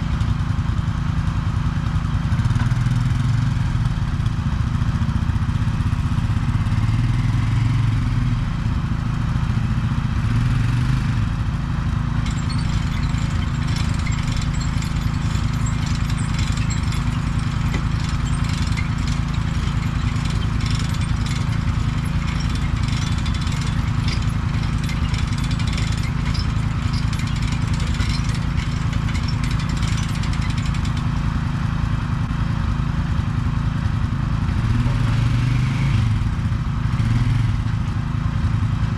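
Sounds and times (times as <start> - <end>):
excavator engine running: 11.2 - 32.4
clattering and scraping in dirt: 12.1 - 31.6.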